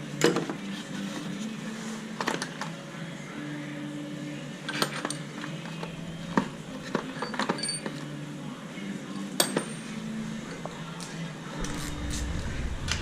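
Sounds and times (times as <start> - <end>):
metal tools clinking and knocking: 6.4 - 8.0
low steady hum: 10.0 - 13.0.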